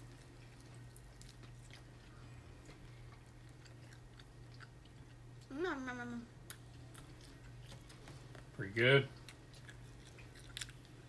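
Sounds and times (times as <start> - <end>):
child chewing: 0.0 - 8.4, 9.0 - 11.0.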